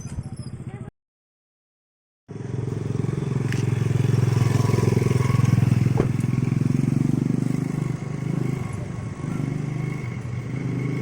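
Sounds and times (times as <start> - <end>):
quad bike engine running: 2.3 - 11.0.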